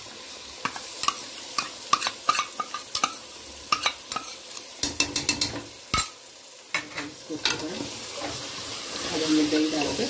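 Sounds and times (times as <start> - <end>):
meat sizzling: 0.0 - 10.0
spoon scraping and clicking: 0.6 - 6.2.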